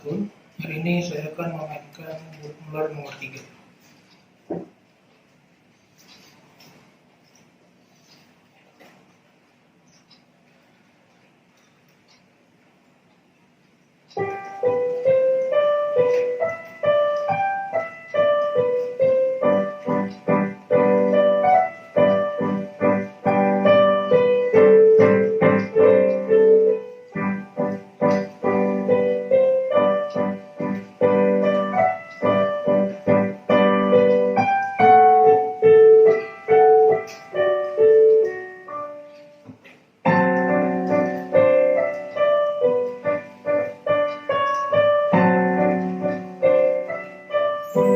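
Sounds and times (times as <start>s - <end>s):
solo piano piece: 13.9s - 47.9s.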